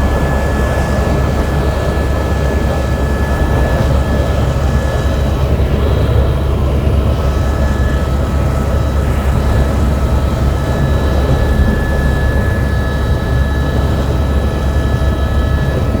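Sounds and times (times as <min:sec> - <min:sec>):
helicopter engine and rotor: 0:00.0 - 0:16.0.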